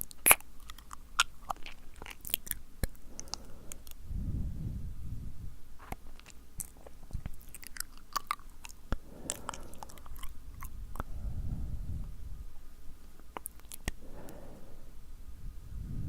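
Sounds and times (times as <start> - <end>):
lip smacks and tongue clicks: 0.0 - 4.0, 5.8 - 11.2, 13.2 - 14.0
breath blowing on microphone: 3.0 - 5.7, 9.0 - 12.6, 13.9 - 16.0.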